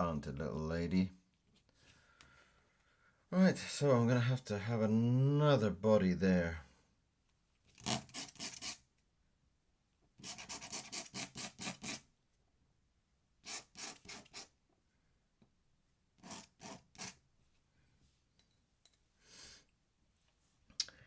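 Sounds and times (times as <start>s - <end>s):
pen scratching on paper: 7.8s - 8.8s, 10.2s - 12.0s, 13.4s - 14.5s, 16.2s - 17.2s.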